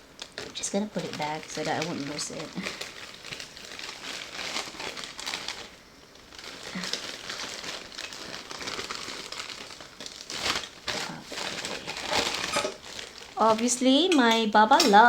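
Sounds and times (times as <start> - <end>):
packaging crinkling and rustling: 0.0 - 15.0
sharp packaging crackles: 0.0 - 15.0.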